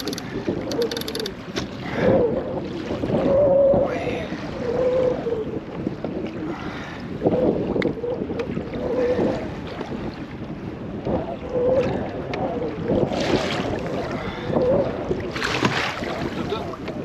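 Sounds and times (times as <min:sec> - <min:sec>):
wind buffeting microphone: 0:00.0 - 0:17.0
water slapping against kayak hull: 0:05.6 - 0:11.2, 0:11.8 - 0:17.0.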